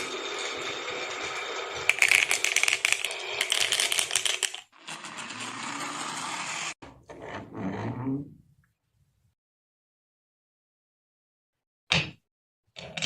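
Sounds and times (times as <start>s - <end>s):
marbles clattering down wooden run: 0.0s - 6.0s.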